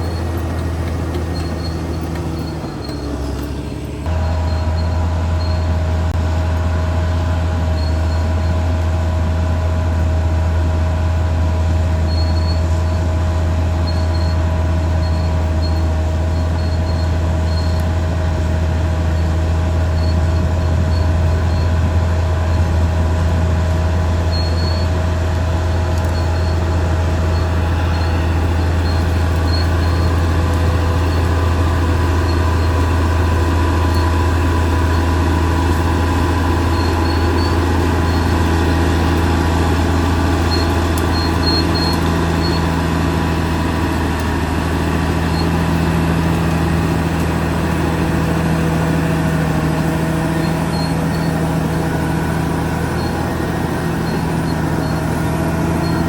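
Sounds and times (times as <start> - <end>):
steel tracks squealing: 0.0 - 5.8, 13.8 - 23.0, 24.0 - 56.0
bulldozer diesel engine droning: 0.0 - 56.0.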